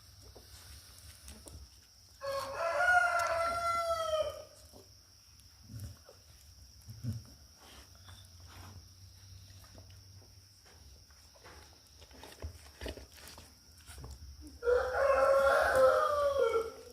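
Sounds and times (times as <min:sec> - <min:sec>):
rooster crowing: 0:02.2 - 0:04.6, 0:14.6 - 0:16.9.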